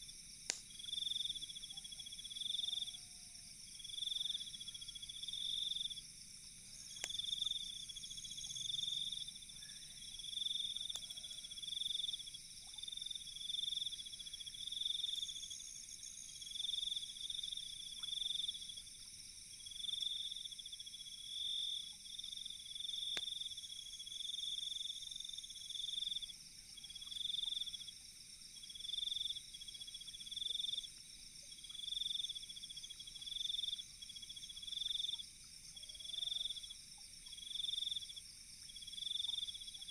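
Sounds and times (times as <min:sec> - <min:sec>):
steady high insect buzz: 0:00.0 - 0:39.9
faint sharp pops: 0:00.5 - 0:00.8.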